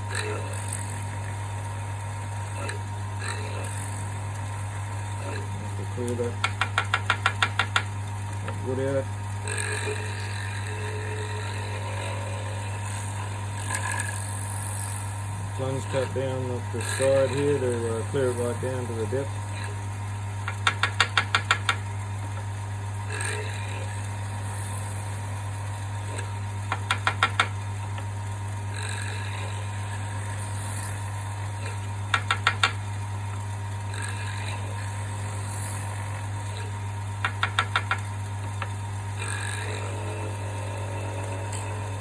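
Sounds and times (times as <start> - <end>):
wood lathe humming: 5.2 - 9.0, 15.4 - 22.6, 26.1 - 28.3, 29.0 - 42.0
sharp clicks: 6.2 - 7.9, 20.5 - 21.8, 26.7 - 27.6, 32.1 - 32.8, 37.2 - 38.8
drill bit cutting wood: 20.5 - 21.8.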